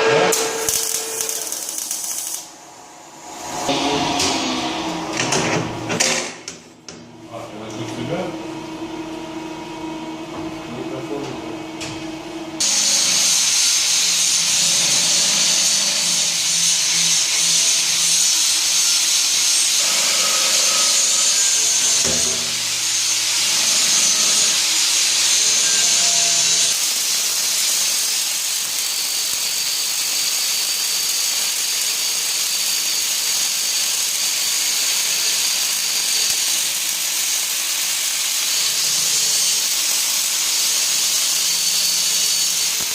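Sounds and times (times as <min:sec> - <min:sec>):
welding hiss: 0:00.3 - 0:02.5, 0:12.6 - 0:42.9.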